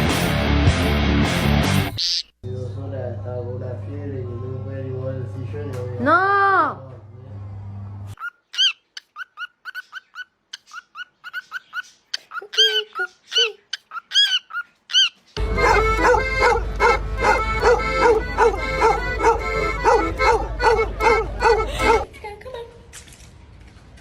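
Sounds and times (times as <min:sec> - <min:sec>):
small dog yipping: 0:08.2 - 0:11.6, 0:12.4 - 0:17.0.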